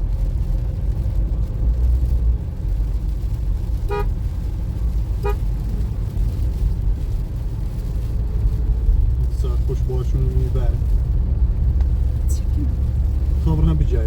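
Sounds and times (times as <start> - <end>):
car engine and road rumble: 0.0 - 14.0
car horn toots: 3.9 - 4.1, 5.2 - 5.5.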